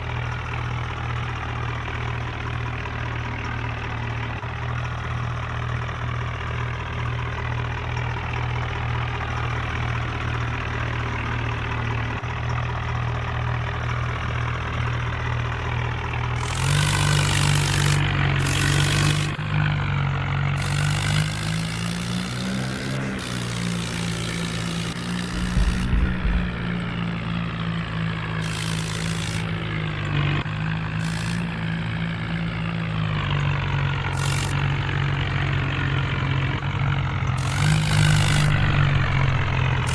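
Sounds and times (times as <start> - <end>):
diesel engine running and revving: 0.0 - 39.9
bursts of hiss: 20.6 - 27.3, 37.4 - 39.9.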